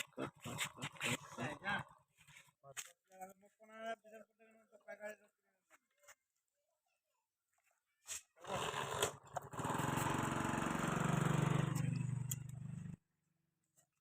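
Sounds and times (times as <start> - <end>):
small tractor engine running: 8.4 - 13.0.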